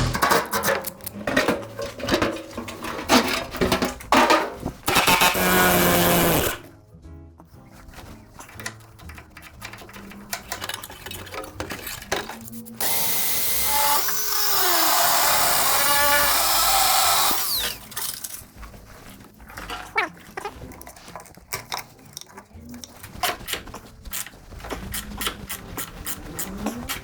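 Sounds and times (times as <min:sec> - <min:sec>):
metallic clicks of hand tools: 0:00.1 - 0:01.2, 0:08.5 - 0:12.9
power drill running: 0:04.9 - 0:06.6, 0:12.8 - 0:17.8.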